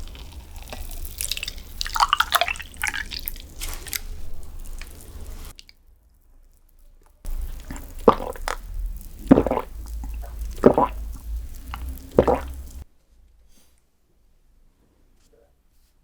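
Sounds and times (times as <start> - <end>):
wet chewing of soft dessert: 0.0 - 5.8, 7.0 - 12.8.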